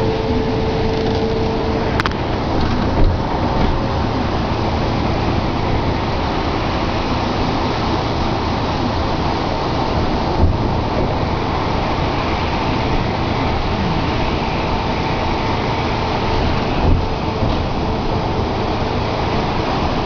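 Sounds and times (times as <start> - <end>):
rain: 0.0 - 20.0
steady hum: 0.0 - 20.0
street traffic: 0.0 - 20.0.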